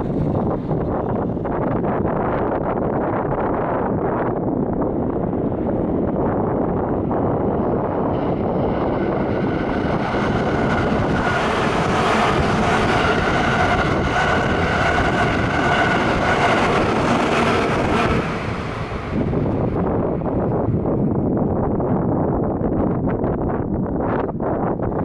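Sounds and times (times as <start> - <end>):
wind buffeting microphone: 0.0 - 25.0
train wheels rushing on rails: 4.7 - 21.2.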